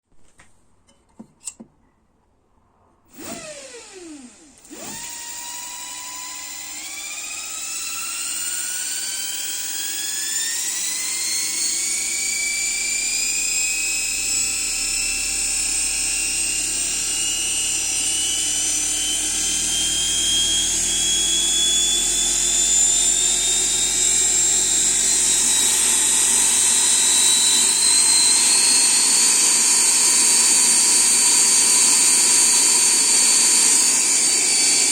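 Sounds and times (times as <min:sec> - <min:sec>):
electric motor whine rising: 0:03.1 - 0:34.9.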